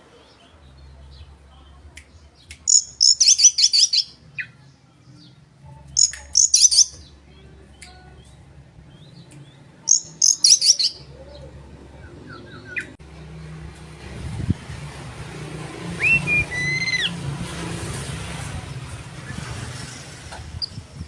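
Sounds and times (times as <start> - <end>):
bird chirps and whistled song: 2.6 - 4.5, 6.0 - 7.1, 9.9 - 11.1, 16.0 - 17.2.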